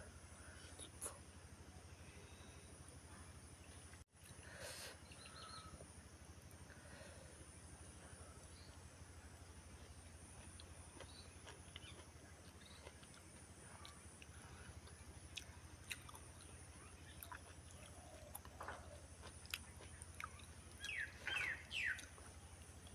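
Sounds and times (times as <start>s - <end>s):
chewing fish: 8.2s - 22.9s
small crunchy clicks: 9.8s - 22.9s.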